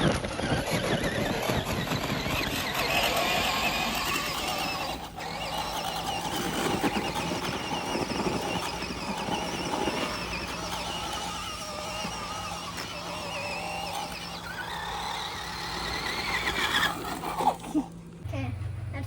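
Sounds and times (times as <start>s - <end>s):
toy car motor whining: 0.0s - 18.3s.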